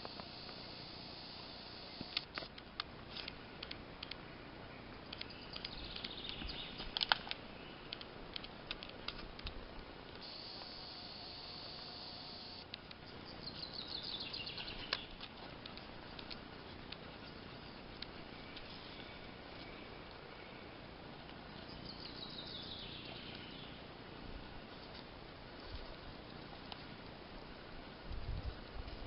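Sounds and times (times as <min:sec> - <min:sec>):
steady high buzz: 0:00.0 - 0:29.0
sharp clicks: 0:01.8 - 0:04.2, 0:05.1 - 0:13.0
bird calling: 0:04.8 - 0:08.0, 0:10.2 - 0:16.2, 0:21.6 - 0:23.8.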